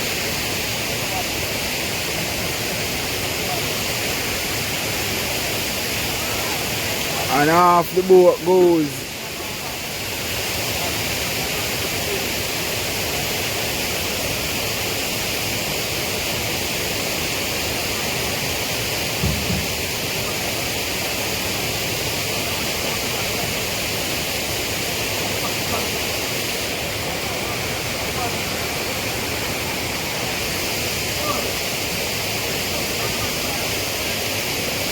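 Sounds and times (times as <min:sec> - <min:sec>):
waterfall and river rushing: 0:00.0 - 0:34.9
low thump: 0:19.2 - 0:19.9.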